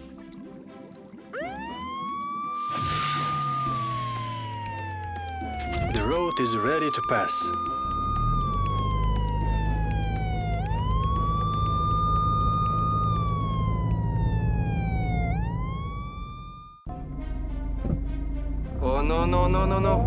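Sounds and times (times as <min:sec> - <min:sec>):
police siren wailing: 0:01.3 - 0:20.0
low vehicle engine hum: 0:07.6 - 0:20.0.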